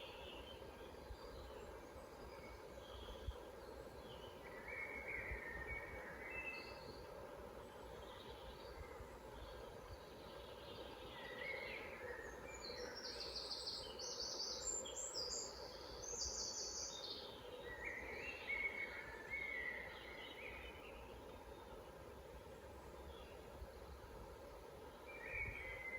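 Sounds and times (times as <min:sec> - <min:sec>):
low background noise: 0:00.0 - 0:25.9
songbirds trilling: 0:00.0 - 0:25.9.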